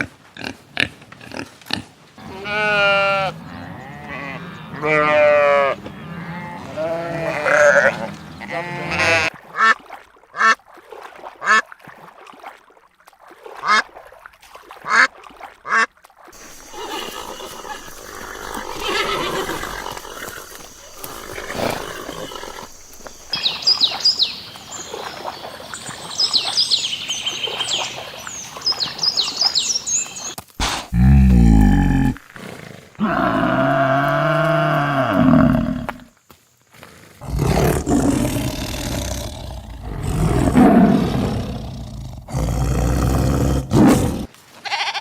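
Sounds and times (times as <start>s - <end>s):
animal bleating: 2.2s - 9.3s, 16.4s - 23.4s, 44.6s - 45.0s
short animal calls: 16.4s - 23.4s
high chirping calls: 16.4s - 24.7s.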